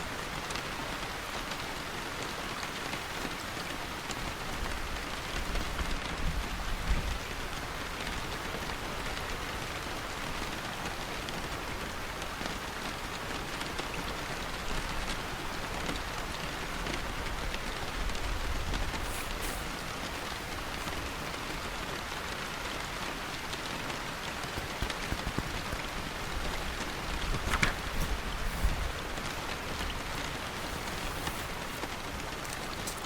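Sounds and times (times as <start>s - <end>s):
steady rain: 0.0s - 33.0s
drops pattering on a surface: 24.4s - 29.2s.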